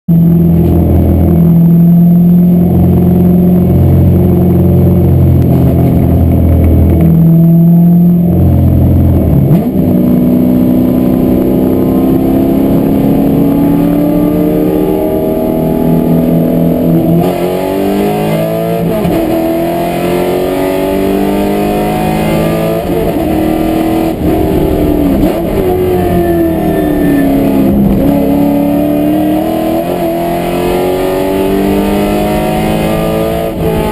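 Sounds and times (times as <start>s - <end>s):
race car engine accelerating: 0.2s - 33.9s.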